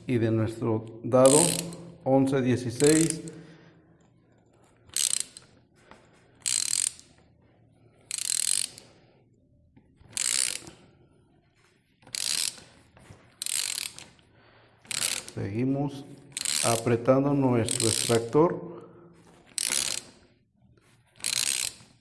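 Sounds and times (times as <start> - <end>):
wrench turning puller screw rasping: 1.2 - 2.0, 2.7 - 3.4, 4.9 - 5.6, 6.4 - 7.3, 8.1 - 8.9, 10.0 - 10.8, 12.0 - 12.8, 13.4 - 14.2, 14.8 - 15.4, 16.3 - 18.4, 19.2 - 20.3, 21.1 - 22.0.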